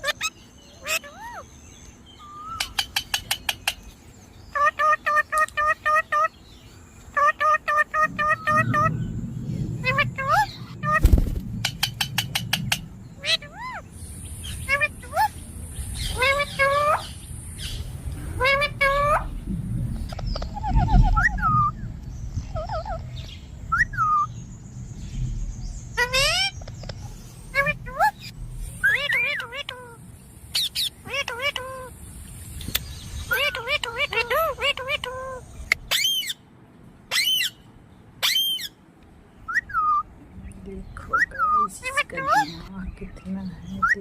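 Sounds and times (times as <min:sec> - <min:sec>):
parrot screeching: 0:00.0 - 0:01.5, 0:09.8 - 0:11.0, 0:11.8 - 0:15.4, 0:16.0 - 0:17.8, 0:18.4 - 0:19.3, 0:20.4 - 0:21.7, 0:22.5 - 0:23.0, 0:26.0 - 0:26.6, 0:27.5 - 0:30.0, 0:30.6 - 0:31.9, 0:33.3 - 0:36.4, 0:37.1 - 0:37.6, 0:38.2 - 0:38.8
parrot chirping: 0:00.0 - 0:06.4, 0:07.1 - 0:09.0, 0:09.8 - 0:11.0, 0:11.6 - 0:24.4, 0:25.8 - 0:36.4, 0:37.1 - 0:38.8, 0:39.4 - 0:40.2, 0:41.0 - 0:42.7
low rumble: 0:06.4 - 0:31.1
parrot chirping and whistling: 0:20.1 - 0:21.8, 0:23.7 - 0:24.4, 0:27.5 - 0:30.0, 0:32.7 - 0:36.4, 0:37.1 - 0:37.6, 0:38.2 - 0:38.8, 0:39.5 - 0:40.1.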